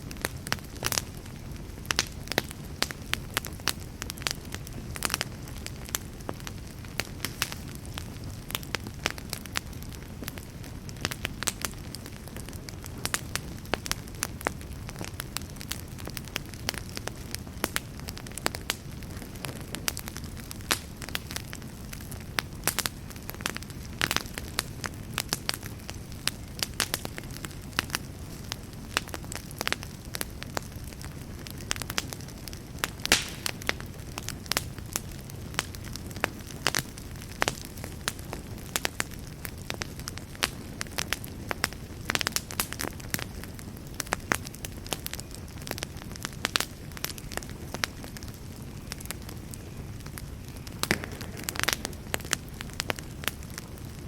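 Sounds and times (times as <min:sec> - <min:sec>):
rumble of flames: 0:00.0 - 0:54.0
wood crackling and popping: 0:00.0 - 0:54.0.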